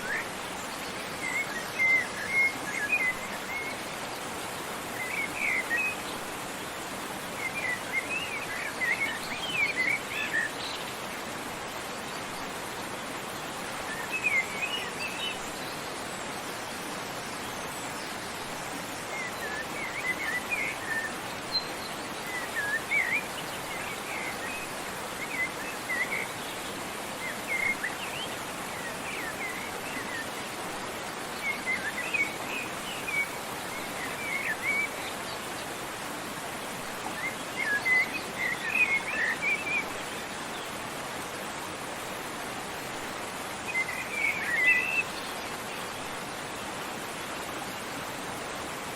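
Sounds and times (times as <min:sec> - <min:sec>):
songbird chirping: 0:00.0 - 0:41.6, 0:42.4 - 0:48.2
rushing water: 0:00.0 - 0:48.9.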